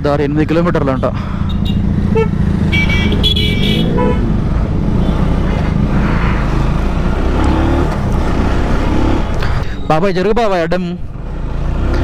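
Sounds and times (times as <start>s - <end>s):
motorcycle engine running: 1.2s - 5.4s
vehicle horn toot: 1.5s - 4.3s.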